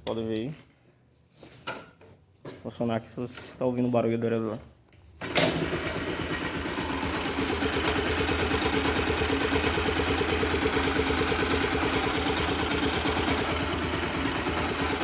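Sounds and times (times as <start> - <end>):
motorcycle engine idling: 5.6 - 15.0.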